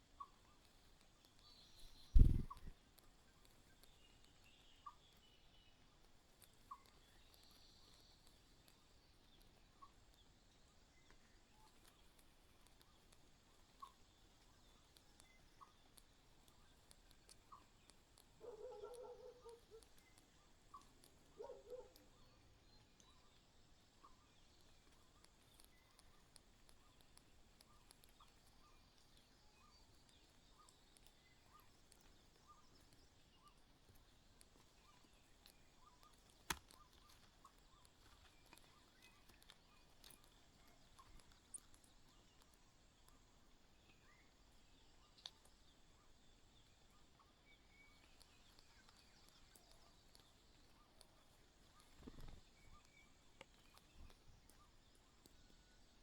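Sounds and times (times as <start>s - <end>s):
faint short chirps: 1.8s - 2.7s.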